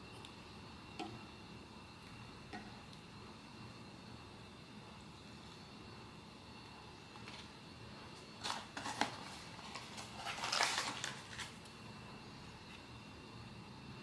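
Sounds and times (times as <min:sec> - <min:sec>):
packaging crinkling and rustling: 0:08.4 - 0:11.7.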